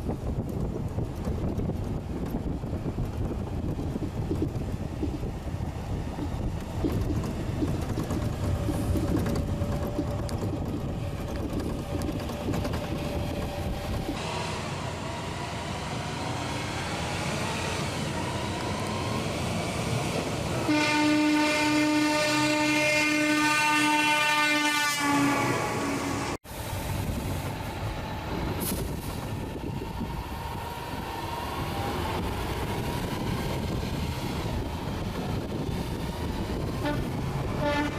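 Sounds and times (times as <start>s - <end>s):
heavy vehicle engine rumble: 0.0s - 14.2s
loud vehicle horn: 20.7s - 26.4s, 36.8s - 37.9s.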